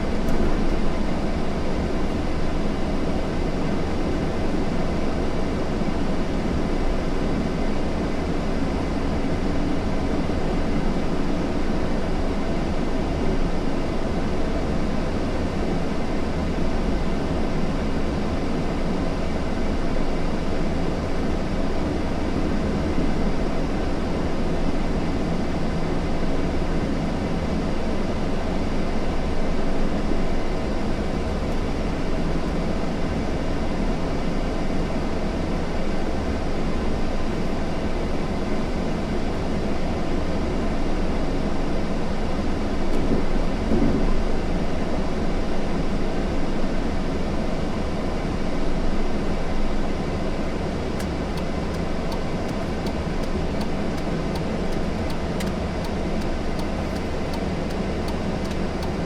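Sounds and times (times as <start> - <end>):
vehicle rumbling: 0.0 - 4.6, 49.6 - 59.0.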